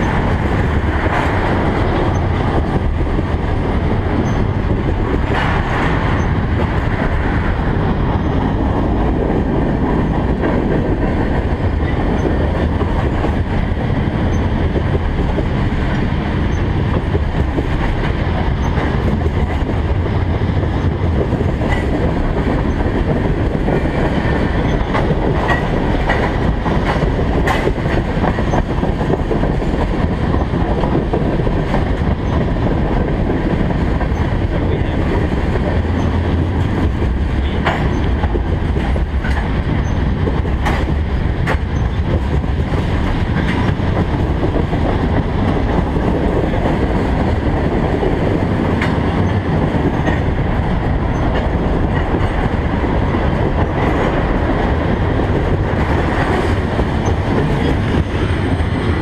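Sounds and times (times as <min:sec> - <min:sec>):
freight train wheels rumbling on rail: 0:00.0 - 0:59.0.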